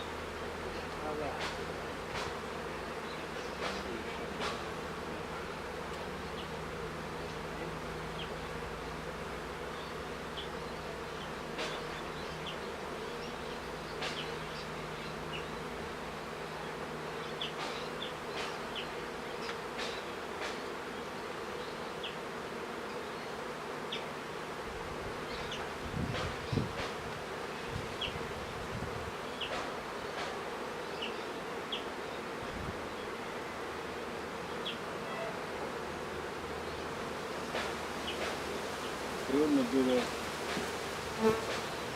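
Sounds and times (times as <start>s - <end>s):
bees buzzing: 0.0s - 41.9s.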